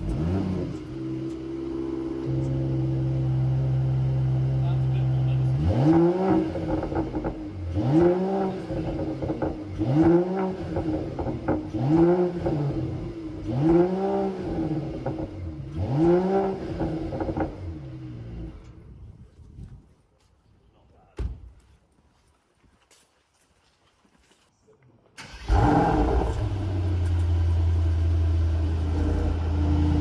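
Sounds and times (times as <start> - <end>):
car engine revving: 0.0 - 18.7, 25.2 - 30.0.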